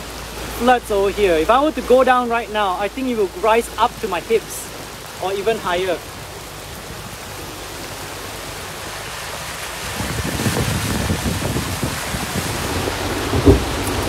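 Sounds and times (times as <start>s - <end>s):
heavy rain falling: 0.0s - 14.0s
low crackling rumble: 0.0s - 14.0s.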